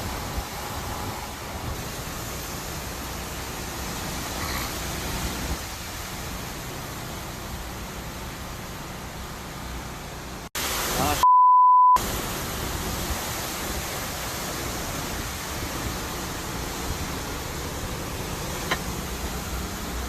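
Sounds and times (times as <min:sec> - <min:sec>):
hurricane wind on microphone: 0:00.0 - 0:11.2, 0:12.0 - 0:20.0
censor bleep: 0:11.2 - 0:12.0.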